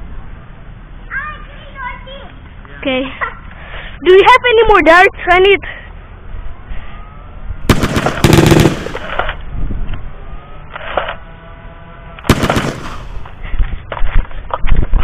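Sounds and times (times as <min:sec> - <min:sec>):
machine-gun fire: 0:07.7 - 0:09.3, 0:12.3 - 0:13.2.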